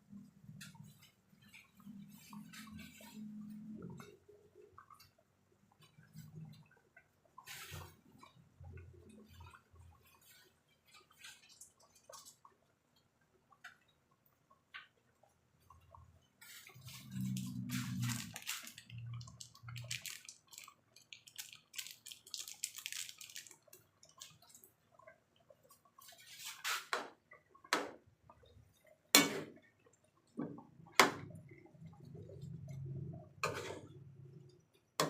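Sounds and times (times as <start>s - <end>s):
water dripping and splashing: 0.0s - 35.0s.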